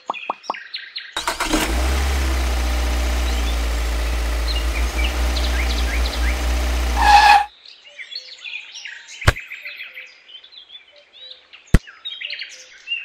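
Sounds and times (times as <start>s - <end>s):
engine running: 1.2s - 7.5s
small birds chirping: 3.2s - 7.0s.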